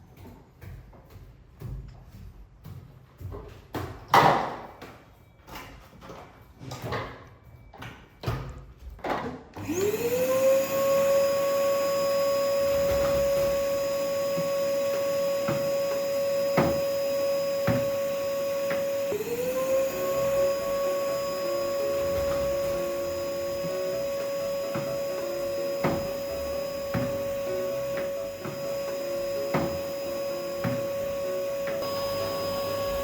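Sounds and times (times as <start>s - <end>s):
vacuum cleaner running: 9.6s - 33.0s.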